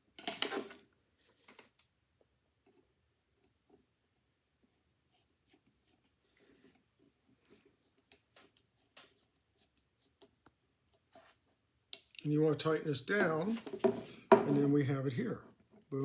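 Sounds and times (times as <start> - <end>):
small metal parts clicking and scraping: 0.2 - 0.7.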